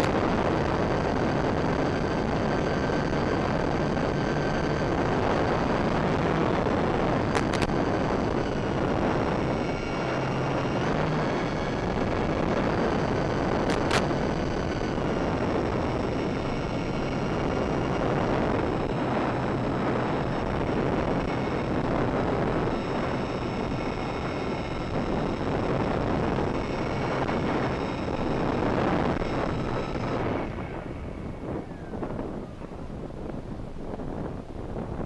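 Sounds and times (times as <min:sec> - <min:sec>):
model plane motors whining: 0:00.0 - 0:33.7
heavy wind rush: 0:00.0 - 0:35.0
sharp clicks: 0:07.3 - 0:07.8, 0:13.6 - 0:14.2.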